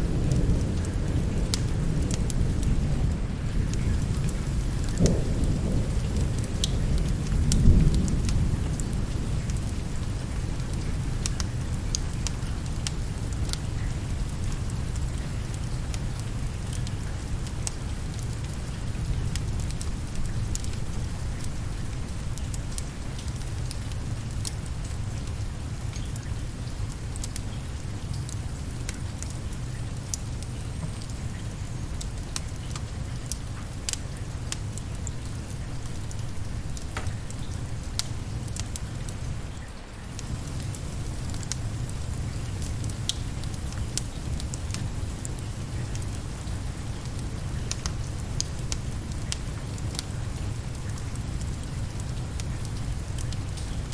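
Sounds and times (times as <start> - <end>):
steady rain: 0.0 - 53.9
wood fire crackling: 0.2 - 53.9.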